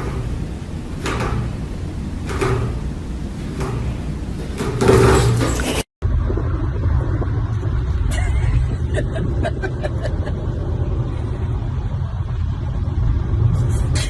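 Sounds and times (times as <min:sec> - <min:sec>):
vehicle road and engine rumble: 0:06.0 - 0:14.0.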